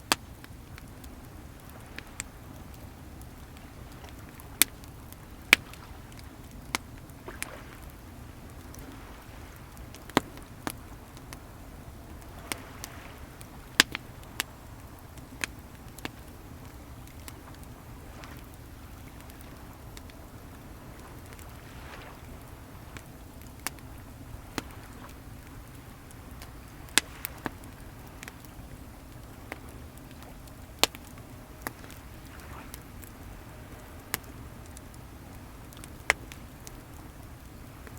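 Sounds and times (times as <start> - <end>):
bonfire crackling: 0.0 - 37.9
ocean waves: 1.4 - 37.9
sharp fire pops: 25.5 - 28.5.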